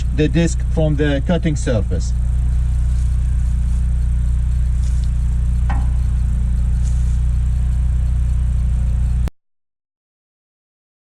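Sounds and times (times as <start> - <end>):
chop saw motor humming: 0.0 - 9.3.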